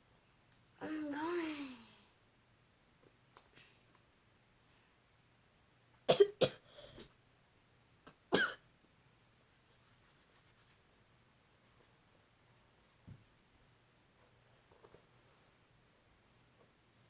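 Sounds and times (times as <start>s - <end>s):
person coughing: 6.1s - 6.6s, 8.4s - 8.6s.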